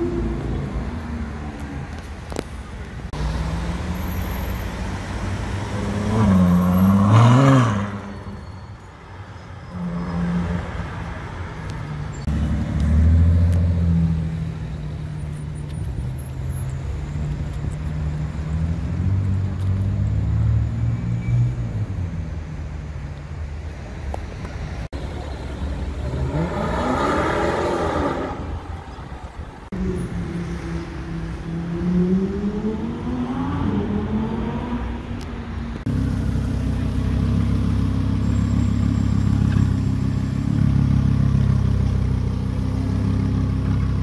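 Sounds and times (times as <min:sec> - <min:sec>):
sports car engines accelerating: 0:11.7 - 0:22.8, 0:25.0 - 0:28.7, 0:29.6 - 0:44.0.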